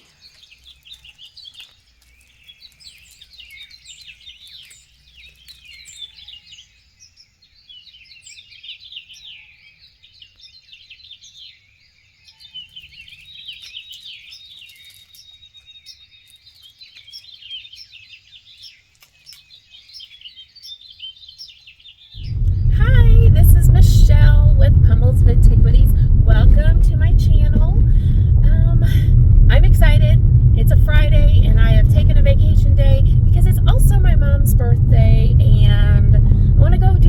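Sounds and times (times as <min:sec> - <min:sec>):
songbirds chirping and singing: 0:00.0 - 0:22.4.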